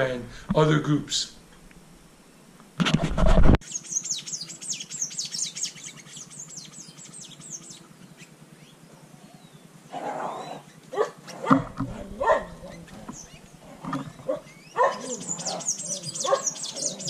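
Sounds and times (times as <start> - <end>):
bird singing whistled notes: 3.6 - 9.7, 12.4 - 17.0.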